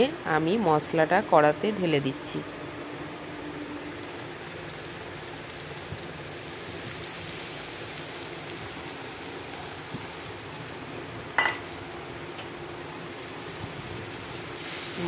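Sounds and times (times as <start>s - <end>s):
paste sizzling in hot oil: 3.9s - 10.6s, 13.4s - 15.0s.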